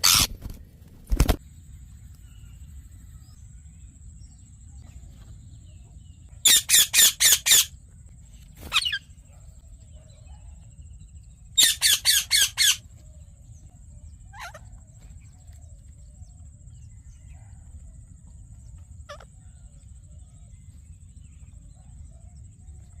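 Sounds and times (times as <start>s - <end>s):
parakeet squawking: 0.0s - 0.4s, 6.4s - 7.7s, 11.6s - 12.8s, 19.1s - 19.3s.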